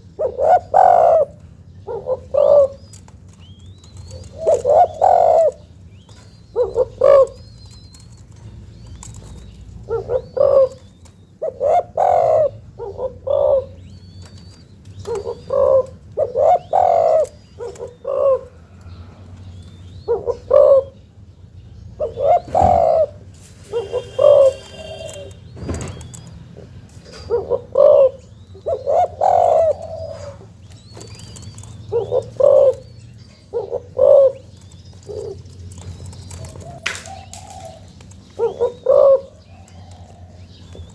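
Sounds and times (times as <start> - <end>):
dove cooing: 0.0 - 21.2, 21.9 - 40.9.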